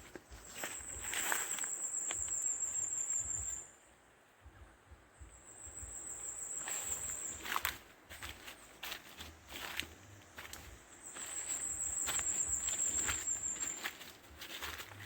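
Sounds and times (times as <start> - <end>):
footsteps crunching on forest floor: 0.0 - 3.6, 6.3 - 15.0
insect trilling: 11.0 - 14.8.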